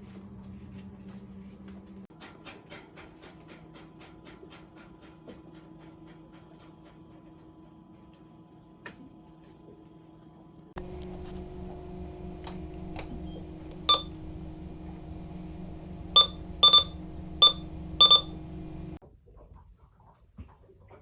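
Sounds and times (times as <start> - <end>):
steady low hum: 4.5 - 19.0
short electronic beeps: 13.3 - 14.2, 16.2 - 18.4.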